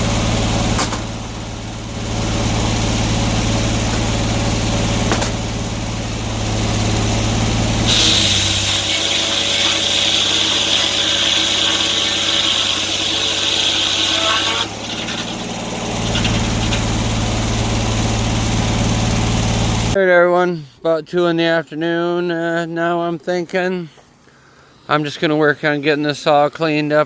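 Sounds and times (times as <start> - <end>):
sawmill engine idling: 0.0 - 20.0
saw cutting through log: 1.8 - 20.0.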